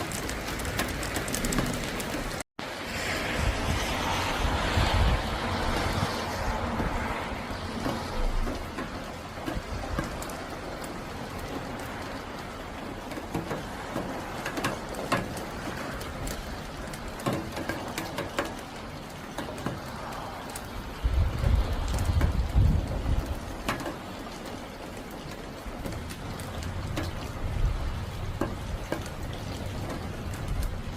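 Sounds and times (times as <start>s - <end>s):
rain patter: 0.0s - 30.9s
raindrops ticking sharply: 0.0s - 30.9s
rushing gust of wind: 1.3s - 8.5s, 20.7s - 23.6s.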